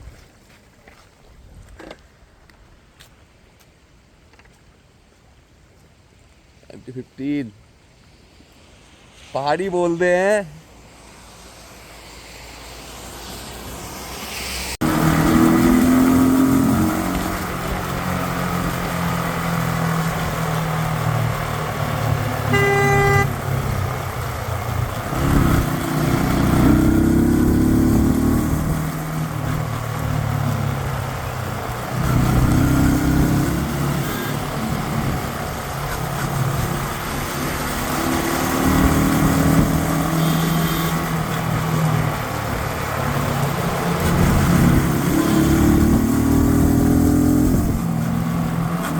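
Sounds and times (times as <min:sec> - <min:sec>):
motorcycle engine accelerating: 0:14.8 - 0:48.9
vehicle horn toot: 0:22.4 - 0:23.4, 0:40.1 - 0:41.0.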